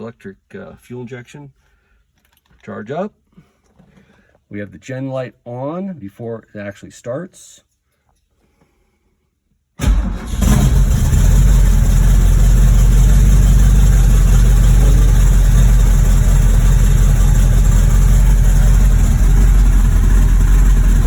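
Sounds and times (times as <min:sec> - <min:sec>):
car engine starting and idling: 0:09.8 - 0:21.0.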